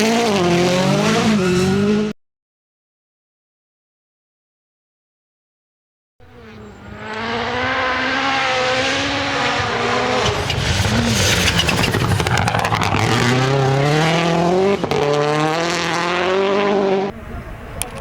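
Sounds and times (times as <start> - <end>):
rally car engine at full throttle: 0.0 - 2.2, 6.2 - 18.0.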